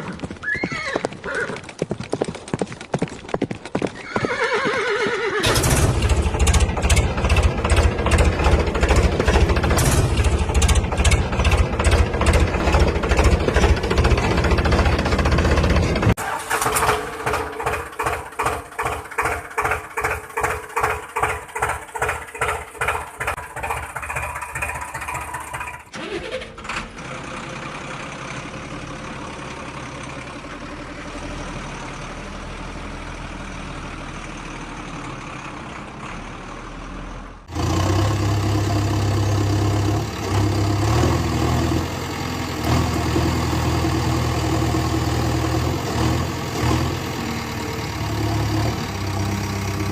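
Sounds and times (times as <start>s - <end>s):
engine chugging: 3.8s - 49.9s
low engine drone: 5.4s - 26.0s
engine hum with hiss: 27.0s - 49.9s.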